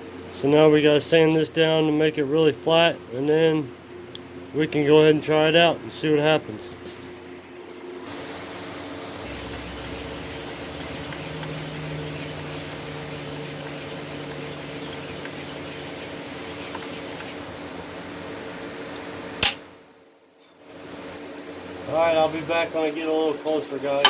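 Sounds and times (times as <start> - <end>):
tubing rubbed on sandpaper: 9.3 - 17.5
sharp click: 19.4 - 19.6.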